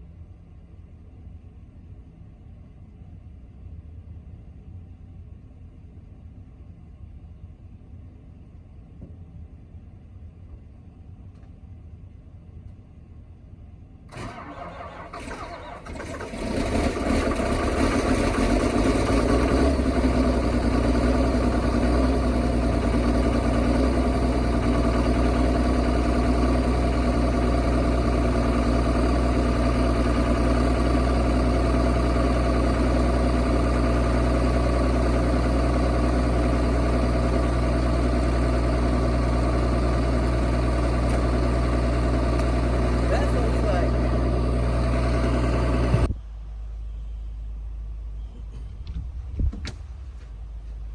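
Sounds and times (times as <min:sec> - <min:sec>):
engine cranking: 0:14.1 - 0:34.3
engine idling: 0:14.1 - 0:50.9
engine clicks: 0:40.8 - 0:44.2.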